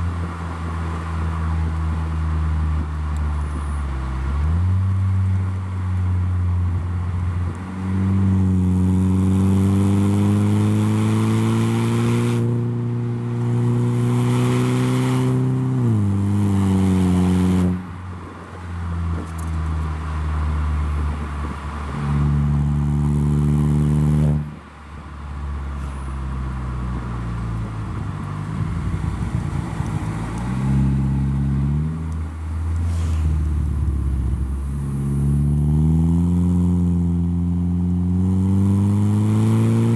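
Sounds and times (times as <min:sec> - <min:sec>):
car engine revving: 0:07.0 - 0:24.6, 0:26.6 - 0:39.9.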